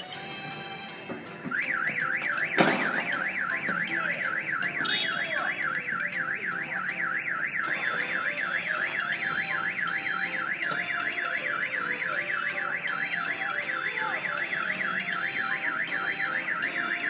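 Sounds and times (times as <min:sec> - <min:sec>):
electronic alarm siren warbling: 0:01.4 - 0:17.0
sharp bang: 0:02.3 - 0:04.0.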